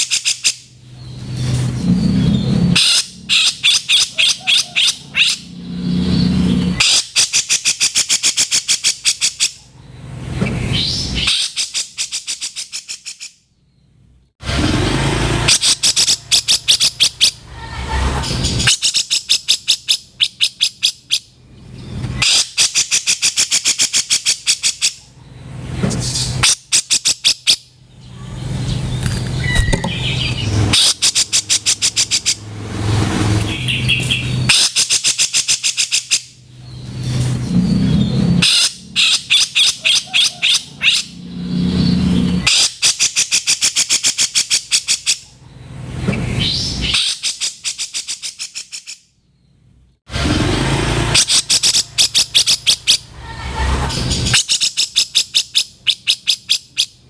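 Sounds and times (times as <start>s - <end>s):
bird harsh rattling calls: 0.0s - 9.6s, 10.7s - 13.3s, 15.5s - 17.4s, 18.1s - 25.0s, 28.7s - 32.4s, 33.4s - 36.3s, 37.0s - 45.3s, 46.4s - 49.0s, 51.1s - 57.0s.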